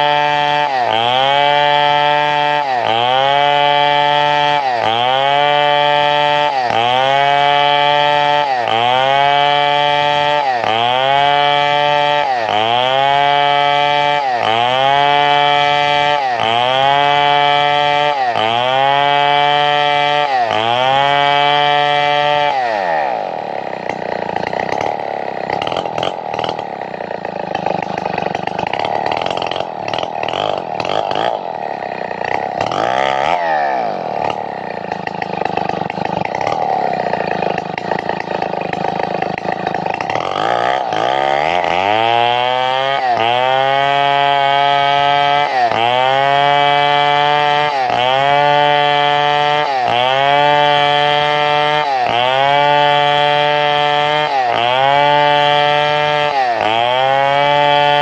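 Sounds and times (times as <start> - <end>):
two-stroke chainsaw running: 0.0 - 58.0.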